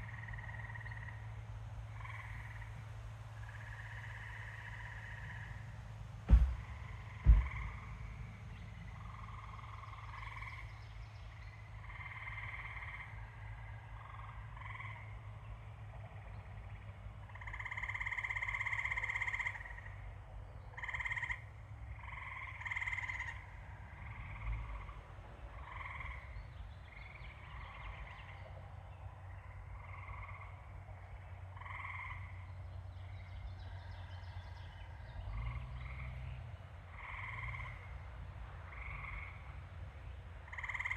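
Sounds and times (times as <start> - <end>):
frogs calling in chorus: 0.0 - 2.8, 3.4 - 5.6, 11.6 - 15.4, 16.1 - 20.0, 20.7 - 26.4, 29.3 - 32.6, 36.9 - 38.0, 38.7 - 39.4, 40.4 - 40.9
steady low rumble: 0.0 - 18.6.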